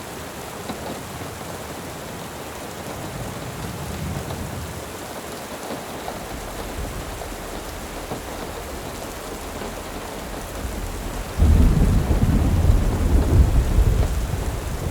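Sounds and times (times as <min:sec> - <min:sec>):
steady rain: 0:00.0 - 0:14.9
thunder rumble: 0:06.1 - 0:14.9.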